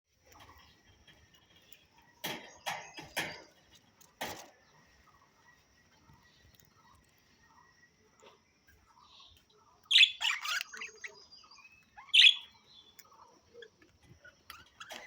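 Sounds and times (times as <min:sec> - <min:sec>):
harsh bird chirps: 0:06.8 - 0:15.0
budgerigars chattering: 0:09.9 - 0:15.0.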